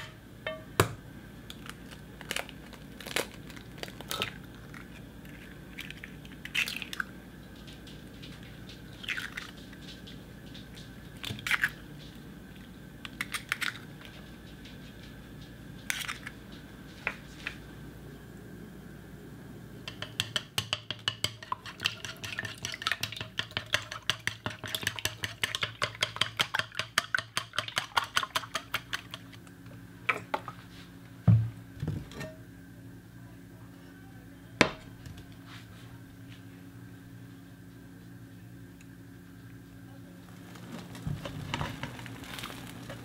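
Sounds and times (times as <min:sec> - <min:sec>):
cookware knocking and clinking: 0:00.0 - 0:00.8
eggs beaten in a ceramic bowl: 0:19.9 - 0:29.4.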